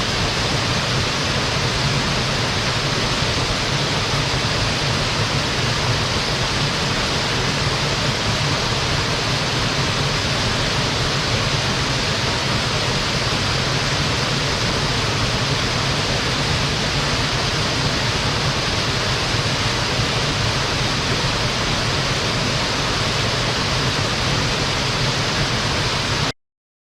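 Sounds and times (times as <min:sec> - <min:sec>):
waterfall rushing into stream: 0:00.0 - 0:26.3.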